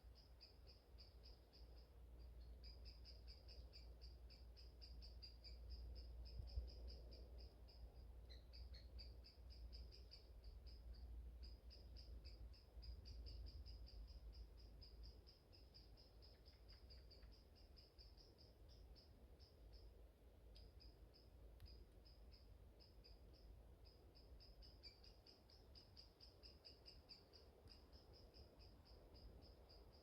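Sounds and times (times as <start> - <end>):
rapid high-pitched chirping: 0.0 - 20.0, 20.6 - 30.0.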